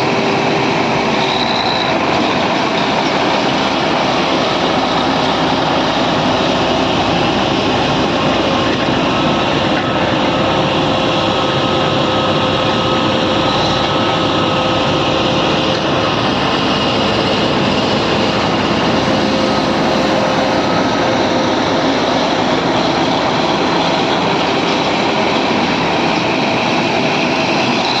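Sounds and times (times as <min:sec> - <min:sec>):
bulldozer diesel engine din: 0:00.0 - 0:28.0
faint steady whines: 0:00.0 - 0:28.0.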